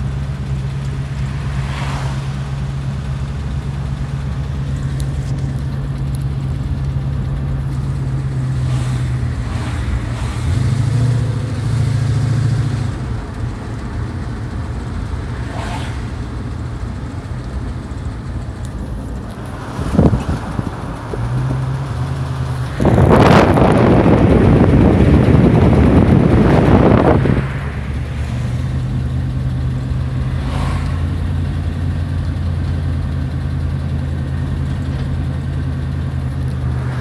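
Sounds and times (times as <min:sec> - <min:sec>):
car engine heard from cabin: 0:00.0 - 0:37.0.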